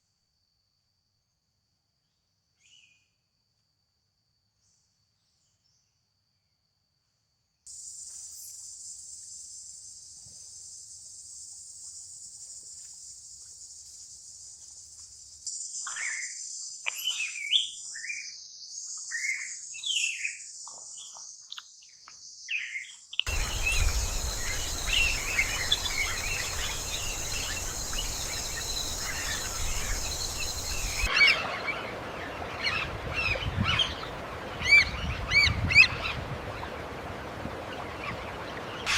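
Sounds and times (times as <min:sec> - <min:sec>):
falling bird chirps: 0:23.3 - 0:31.1
high-pitched insect buzz: 0:23.3 - 0:31.1
rushing background noise: 0:23.3 - 0:31.1
chorus of bird calls: 0:23.3 - 0:38.9.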